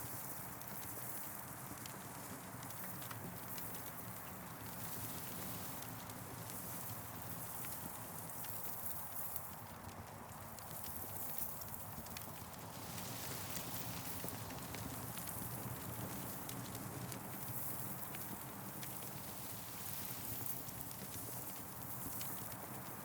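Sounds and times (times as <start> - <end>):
campfire crackling: 9.5 - 23.0.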